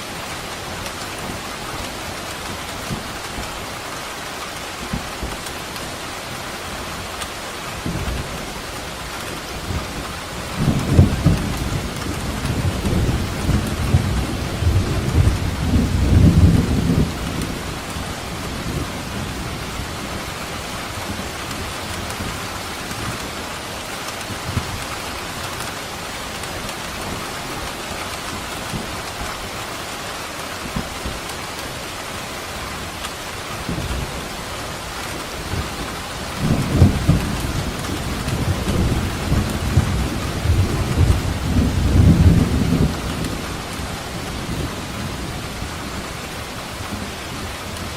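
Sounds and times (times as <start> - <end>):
heavy rain: 0.0 - 47.9
thunder rumbling: 9.6 - 20.2, 33.6 - 47.9.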